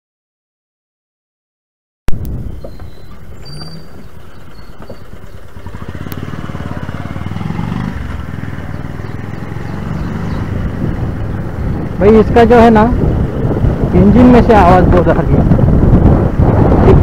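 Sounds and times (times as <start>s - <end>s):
engine ticking: 2.1s - 14.2s
motorcycle engine running: 2.1s - 17.0s.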